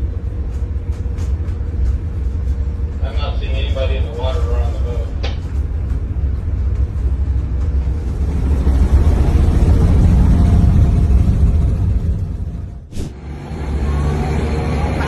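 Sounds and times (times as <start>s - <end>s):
low rumble: 11.4s - 13.3s.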